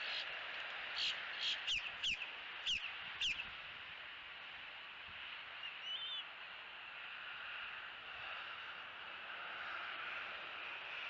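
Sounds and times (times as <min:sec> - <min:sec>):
steady outdoor hiss: 0:00.0 - 0:11.0
bird chirping: 0:01.0 - 0:03.5, 0:05.6 - 0:06.2.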